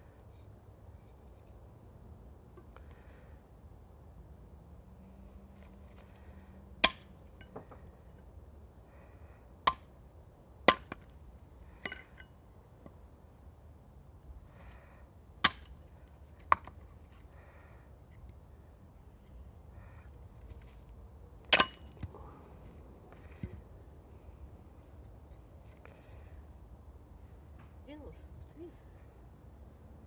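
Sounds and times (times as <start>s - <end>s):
sharp wood cracks: 15.4s - 15.8s.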